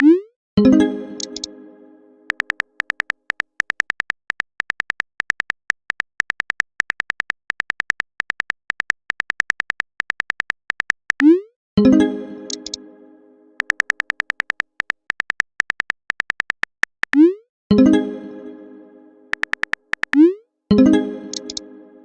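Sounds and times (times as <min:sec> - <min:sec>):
phone keyboard typing clicks: 0:01.2 - 0:01.5, 0:02.3 - 0:11.4, 0:12.5 - 0:12.8, 0:13.6 - 0:17.3, 0:19.3 - 0:20.3, 0:21.3 - 0:21.6.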